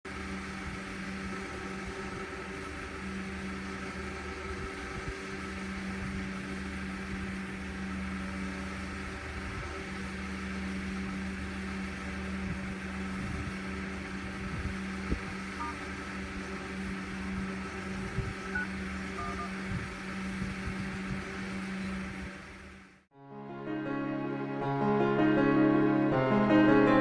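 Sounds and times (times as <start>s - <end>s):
electrical hum: 0.1s - 22.8s
faint short beeps: 15.6s - 15.8s, 18.4s - 19.6s.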